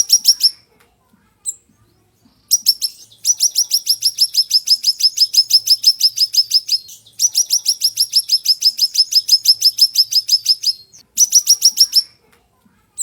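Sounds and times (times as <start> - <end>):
songbird trilling: 0.0 - 0.6, 2.5 - 12.1.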